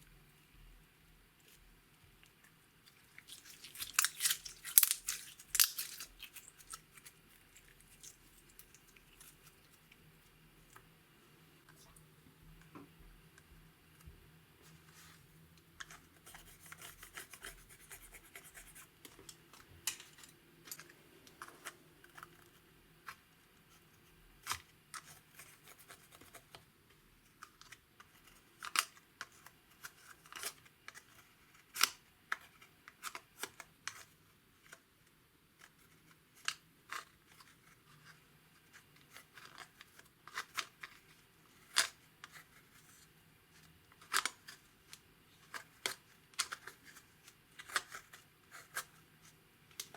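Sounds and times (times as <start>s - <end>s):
slime snapping: 3.2s - 6.5s.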